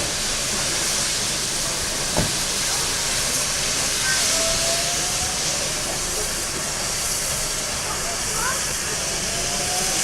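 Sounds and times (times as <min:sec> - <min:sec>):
steam locomotive hissing: 0:00.0 - 0:10.0.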